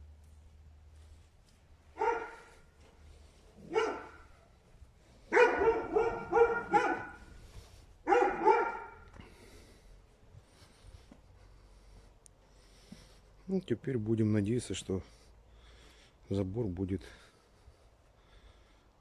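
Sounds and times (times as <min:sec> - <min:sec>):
dog barking: 0:01.9 - 0:02.7, 0:03.6 - 0:04.5, 0:05.3 - 0:07.4, 0:08.0 - 0:09.1.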